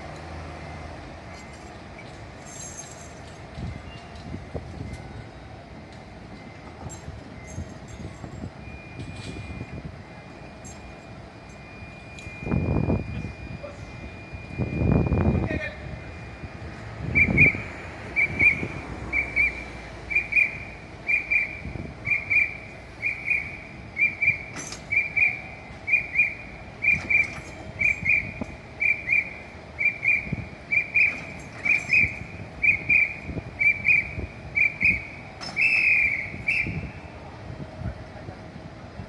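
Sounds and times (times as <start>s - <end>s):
electronic warning beeps: 0.6s - 37.2s.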